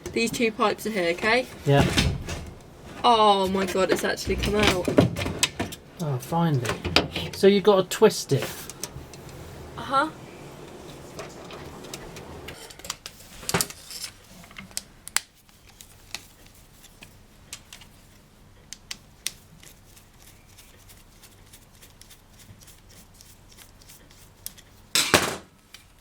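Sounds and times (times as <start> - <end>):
small parts clicking and tapping: 12.5 - 17.9.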